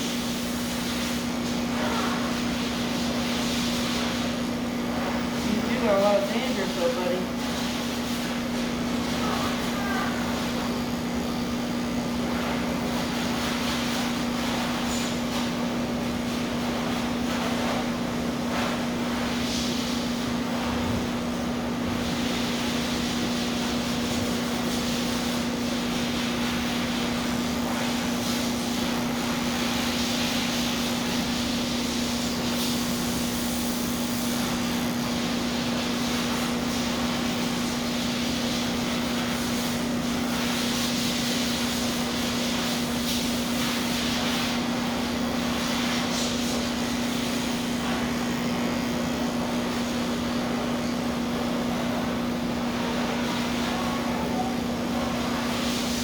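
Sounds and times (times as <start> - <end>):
electric clippers humming: 30.5 - 37.9, 44.2 - 53.1.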